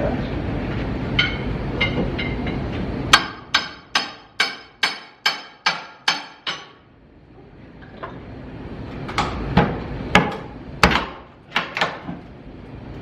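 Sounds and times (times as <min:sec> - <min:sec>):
hammer striking metal: 0:01.2 - 0:06.8.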